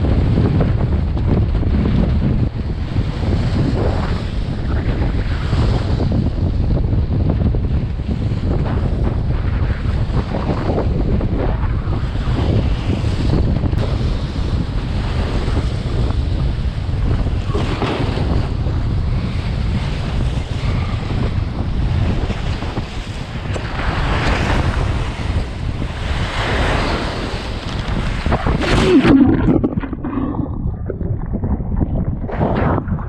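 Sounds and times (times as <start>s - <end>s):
wind buffeting microphone: 0.0s - 33.0s
waves washing: 22.8s - 33.0s.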